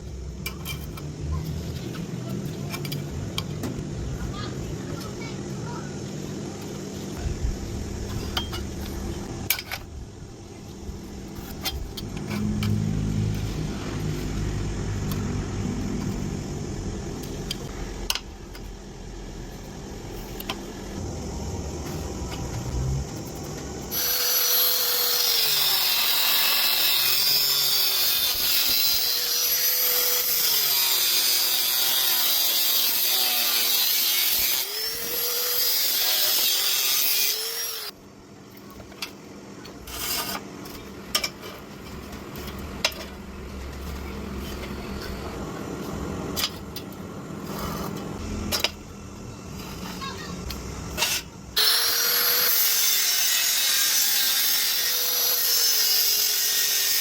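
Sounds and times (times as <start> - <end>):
power grinder grinding metal: 23.9 - 37.9, 51.0 - 57.0.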